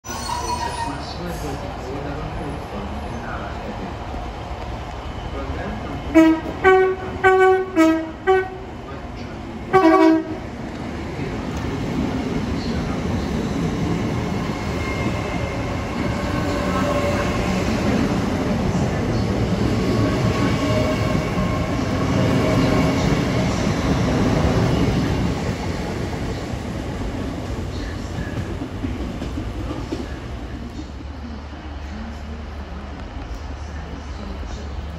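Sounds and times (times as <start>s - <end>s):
train wheels rumbling past: 0.0s - 34.9s
train horn: 6.2s - 8.6s, 9.7s - 10.4s.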